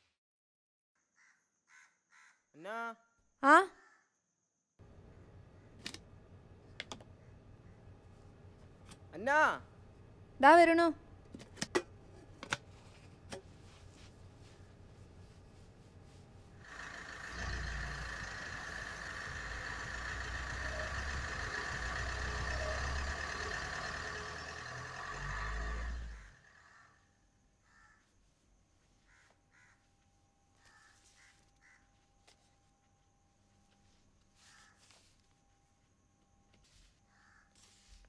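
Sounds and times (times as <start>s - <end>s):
car engine running: 16.5s - 26.6s.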